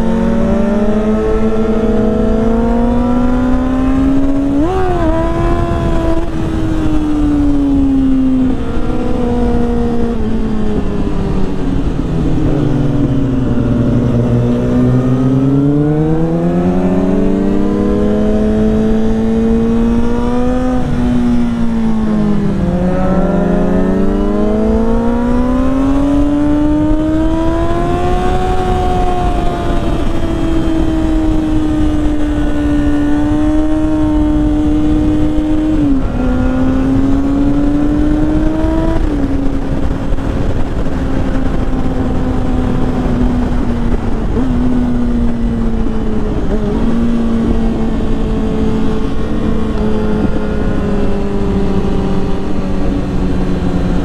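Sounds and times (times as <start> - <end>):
motorcycle engine running at speed: 0.0 - 54.0
wind and road noise: 0.0 - 54.0.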